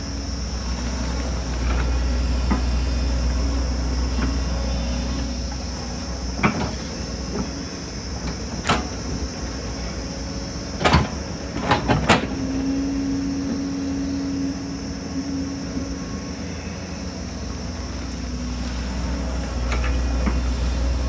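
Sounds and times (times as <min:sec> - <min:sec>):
excavator diesel engine rumbling: 0:00.0 - 0:21.0
metallic clanks and knocks: 0:06.4 - 0:07.6, 0:08.2 - 0:09.3, 0:10.8 - 0:12.5.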